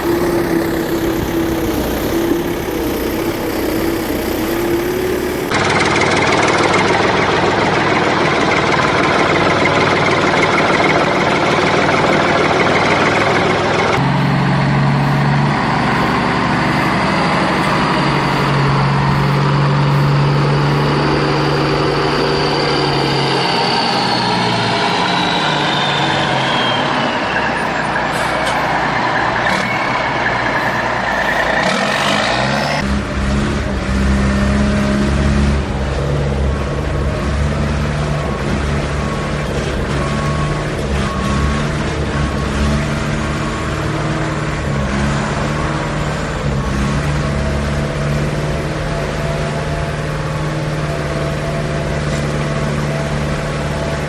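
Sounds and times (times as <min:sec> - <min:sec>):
high whine falling in pitch: 0:00.0 - 0:33.0
heavy vehicle engines running: 0:00.0 - 0:54.0.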